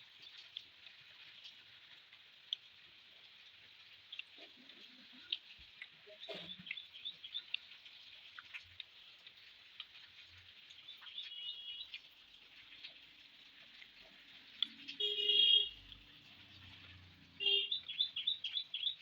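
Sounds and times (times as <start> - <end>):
bird-like chirp: 6.0 - 8.0, 10.8 - 12.1, 16.6 - 19.0
wet mouth clicks and smacks: 8.3 - 8.9.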